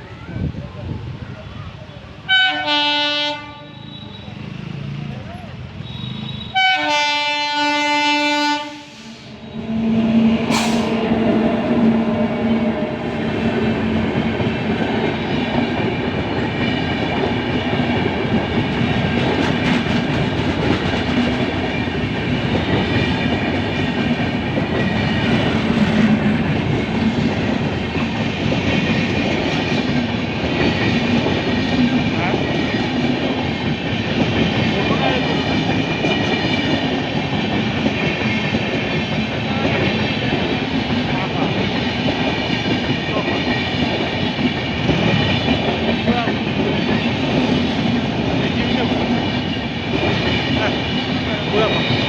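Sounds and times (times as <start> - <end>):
train coaches rolling past: 0.0 - 52.0
locomotive horn: 2.3 - 4.3, 5.8 - 11.0
sharp metal clank: 10.5 - 11.0
wheels clacking over rail joints: 10.5 - 32.0.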